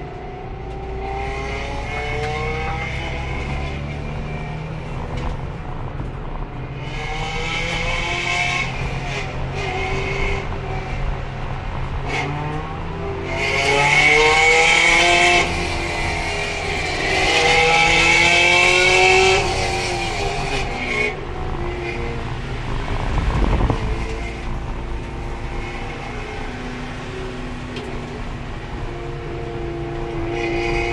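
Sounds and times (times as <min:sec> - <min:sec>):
race car engine revving: 0:00.0 - 0:30.9
tires squealing: 0:06.7 - 0:30.9.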